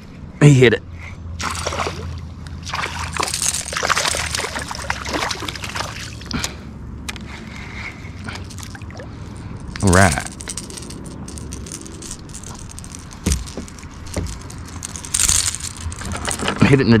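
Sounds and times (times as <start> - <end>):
water splashing and sloshing: 1.4 - 6.6, 8.3 - 9.4.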